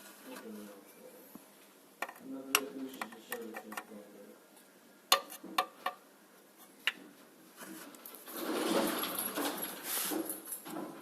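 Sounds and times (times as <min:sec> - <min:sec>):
rustling: 0:07.5 - 0:10.8.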